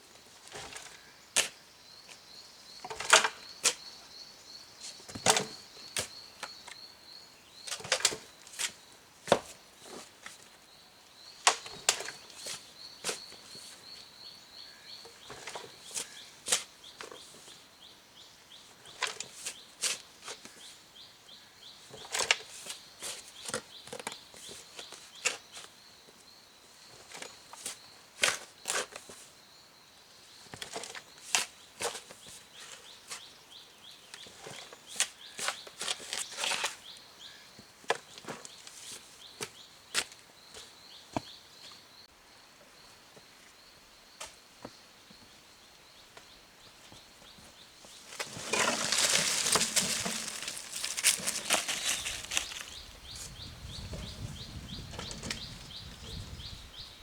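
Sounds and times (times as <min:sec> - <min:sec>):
loud rustling: 0:48.2 - 0:53.3.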